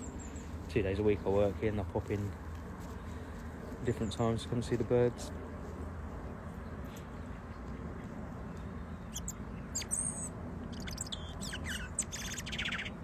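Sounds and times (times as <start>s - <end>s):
robin singing: 8.4s - 13.0s.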